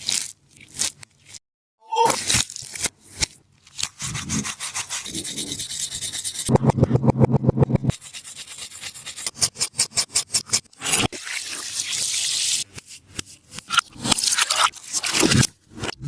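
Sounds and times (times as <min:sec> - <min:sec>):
squishy toy rubbed and scratched: 0:02.1 - 0:06.5, 0:07.6 - 0:16.0.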